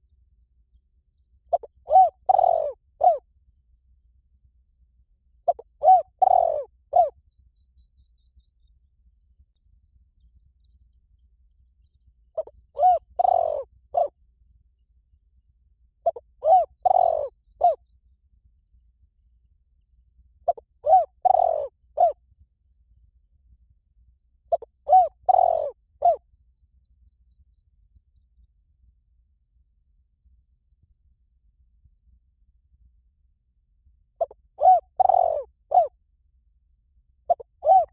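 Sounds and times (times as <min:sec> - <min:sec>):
dove cooing: 0:01.5 - 0:03.2, 0:05.5 - 0:07.1, 0:12.4 - 0:14.1, 0:16.1 - 0:17.8, 0:20.5 - 0:22.2, 0:24.5 - 0:26.2, 0:34.2 - 0:35.9, 0:37.3 - 0:37.9.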